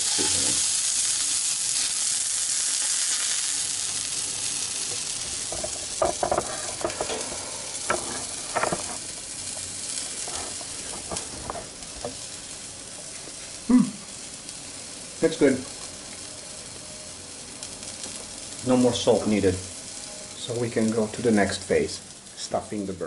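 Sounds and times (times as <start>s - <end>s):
meat sizzling in a frying pan: 0.0s - 23.0s.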